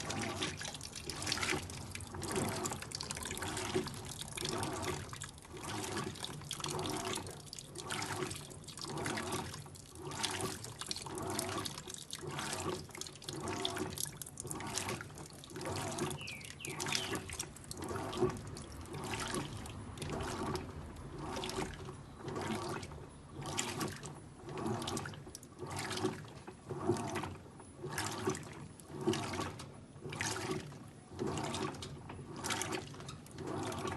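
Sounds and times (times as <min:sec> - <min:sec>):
washing machine water sloshing: 0:00.0 - 0:33.9.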